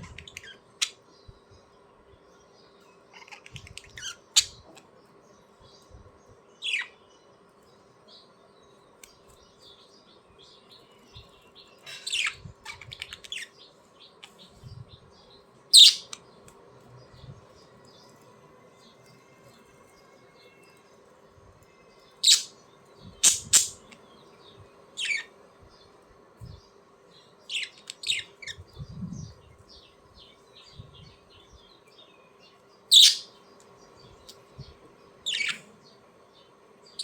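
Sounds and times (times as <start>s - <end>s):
budgerigars chirping and squawking: 0.0s - 1.0s, 3.1s - 4.9s, 6.6s - 7.0s, 11.9s - 14.6s, 15.7s - 16.2s, 22.2s - 24.0s, 25.0s - 25.3s, 27.5s - 28.7s, 32.9s - 33.4s, 35.2s - 35.8s
faint steady hum: 0.0s - 37.0s.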